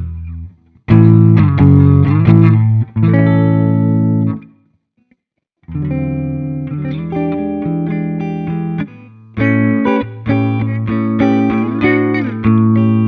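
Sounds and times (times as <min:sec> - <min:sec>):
electric guitar through amp: 0:05.7 - 0:13.0.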